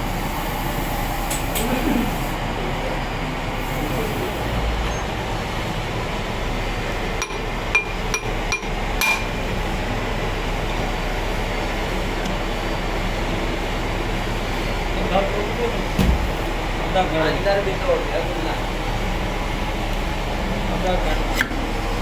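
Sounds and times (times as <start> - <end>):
steady background noise: 0.0 - 22.0
hammer striking metal: 7.2 - 9.4.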